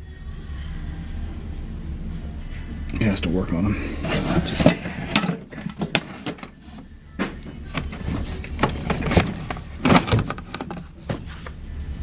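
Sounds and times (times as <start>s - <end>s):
low steady hum: 0.0s - 12.0s
objects knocking and rattling: 4.0s - 11.6s.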